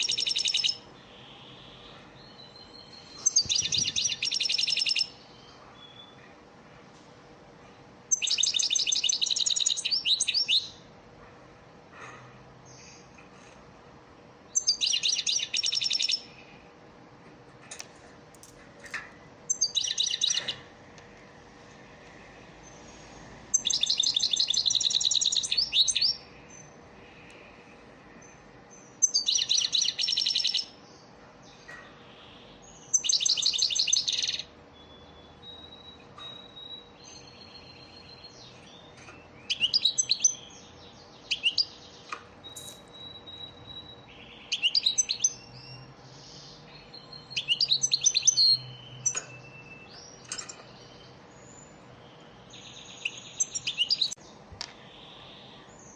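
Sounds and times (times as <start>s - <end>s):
goldfinch twittering song: 0.0s - 6.2s, 8.1s - 10.8s, 14.6s - 16.3s, 19.5s - 20.6s, 23.5s - 26.7s, 29.0s - 30.8s, 32.6s - 54.2s.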